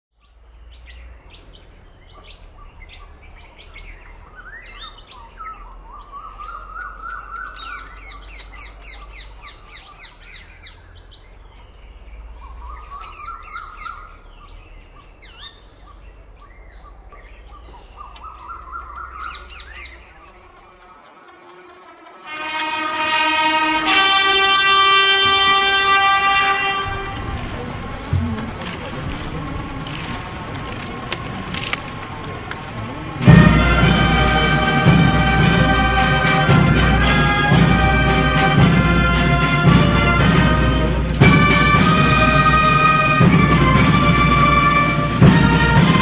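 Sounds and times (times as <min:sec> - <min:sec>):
birds chirping and trilling: 0:00.1 - 0:39.2
low steady hum: 0:00.2 - 0:46.0
rising bird call: 0:00.3 - 0:27.2.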